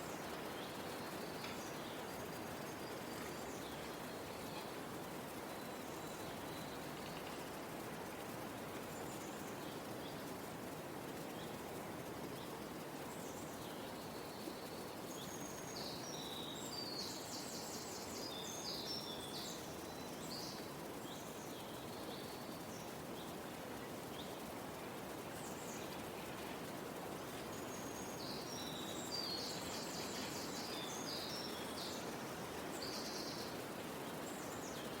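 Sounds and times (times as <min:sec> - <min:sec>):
outdoor background hiss: 0:00.0 - 0:35.0
small birds chirping: 0:12.4 - 0:35.0.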